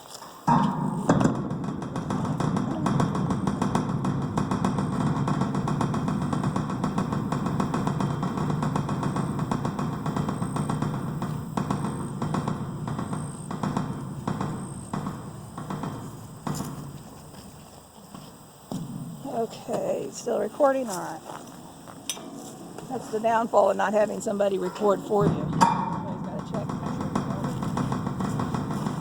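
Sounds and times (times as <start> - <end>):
knocks from handling hive: 0.5 - 19.2
honeybees buzzing: 2.0 - 29.0.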